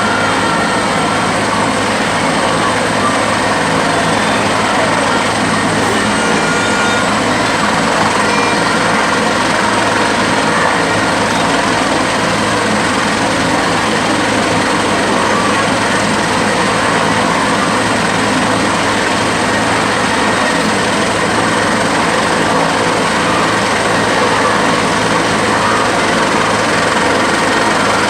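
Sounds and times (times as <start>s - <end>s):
helicopter engine and rotor: 0.0s - 28.0s.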